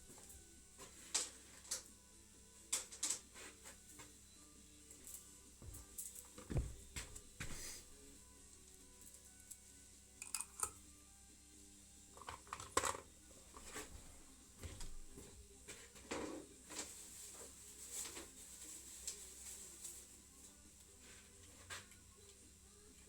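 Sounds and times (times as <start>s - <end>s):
faint background music: 0.0s - 23.0s
metal tools clinking: 10.2s - 10.8s.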